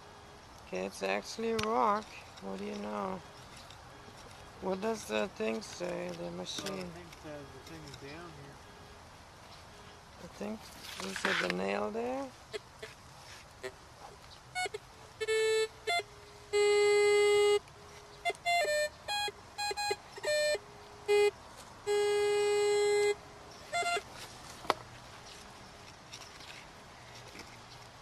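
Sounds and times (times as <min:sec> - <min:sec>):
metal detector beeps: 0:18.3 - 0:21.3, 0:21.9 - 0:24.1.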